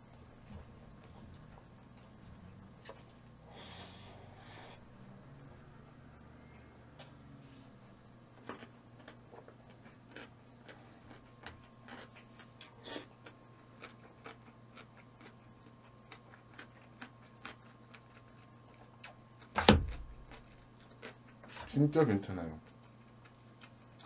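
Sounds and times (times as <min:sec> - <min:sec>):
person chewing and mouth noises: 0:08.5 - 0:21.6
loud thump: 0:19.6 - 0:20.1.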